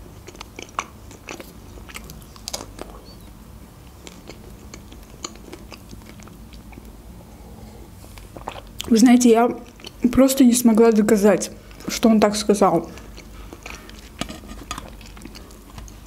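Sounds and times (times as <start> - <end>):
chewing with wet mouth clicks: 0.0 - 7.0, 8.2 - 10.2, 12.8 - 16.0.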